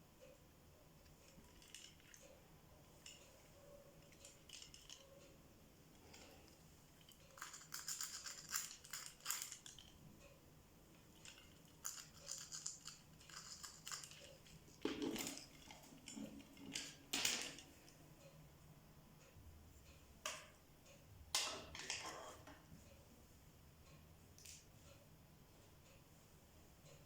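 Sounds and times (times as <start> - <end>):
light scraping and clicking: 21.7 - 22.6.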